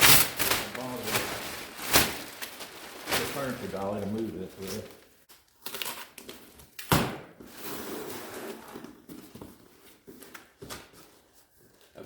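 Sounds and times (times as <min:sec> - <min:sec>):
packing rustling: 0:00.0 - 0:05.1.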